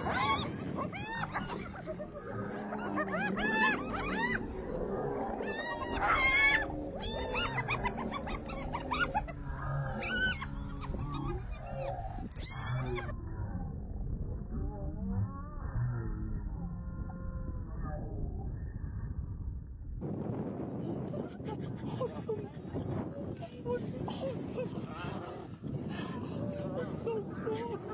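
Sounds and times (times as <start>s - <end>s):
hyenas whooping and cackling: 0.0s - 13.2s
hyenas growling: 0.0s - 18.2s.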